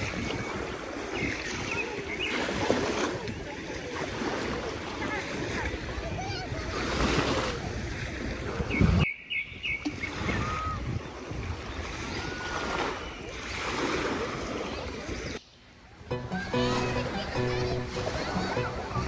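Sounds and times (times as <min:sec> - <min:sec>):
waves washing onto shore: 0:00.0 - 0:09.0, 0:09.8 - 0:15.4
wind buffeting microphone: 0:00.0 - 0:12.8.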